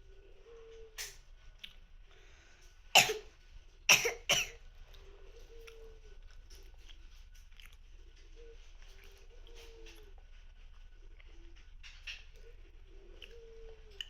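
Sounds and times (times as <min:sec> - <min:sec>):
person coughing: 0:03.0 - 0:03.3, 0:03.9 - 0:04.6.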